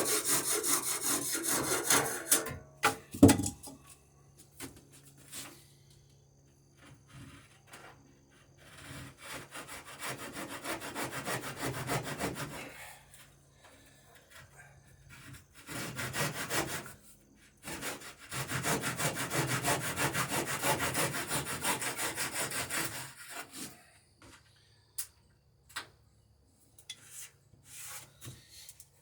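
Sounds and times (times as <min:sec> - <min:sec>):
handsaw cutting wood: 0:00.0 - 0:02.5, 0:08.6 - 0:12.8, 0:15.1 - 0:17.0, 0:17.6 - 0:23.8
sharp knocks: 0:02.8 - 0:03.7.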